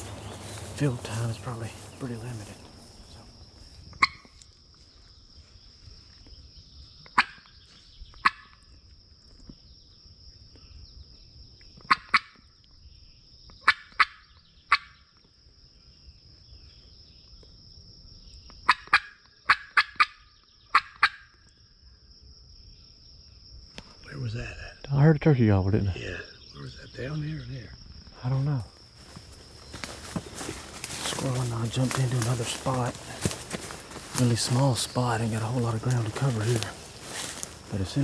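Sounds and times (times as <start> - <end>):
insects droning: 0.0 - 38.0
turkey call cutts: 4.0 - 4.4, 8.2 - 8.6, 11.8 - 12.4, 13.6 - 15.0, 18.6 - 21.4.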